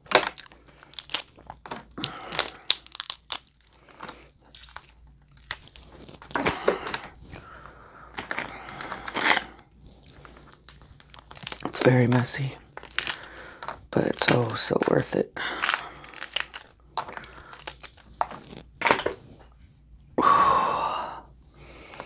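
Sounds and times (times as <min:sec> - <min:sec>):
crab shells cracking: 0:00.0 - 0:07.5, 0:08.2 - 0:18.7
wet chewing: 0:00.2 - 0:07.6, 0:08.7 - 0:11.8, 0:12.7 - 0:14.5, 0:15.6 - 0:18.7.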